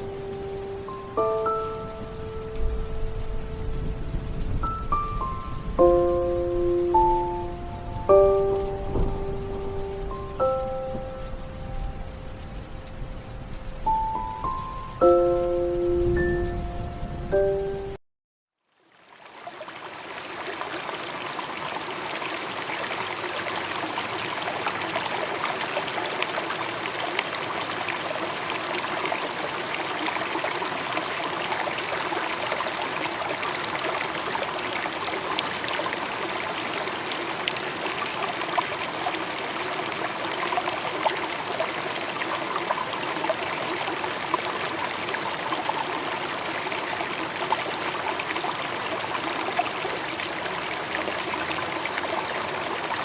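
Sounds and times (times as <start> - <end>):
trickling water: 0.0 - 18.0, 18.6 - 53.0
faint ticks: 10.4 - 17.7.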